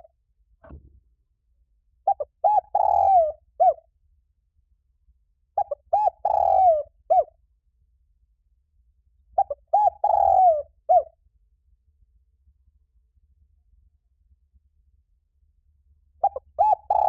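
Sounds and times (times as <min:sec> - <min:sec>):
dove cooing: 0:02.1 - 0:03.8, 0:05.6 - 0:07.3, 0:09.4 - 0:11.1, 0:16.2 - 0:17.0.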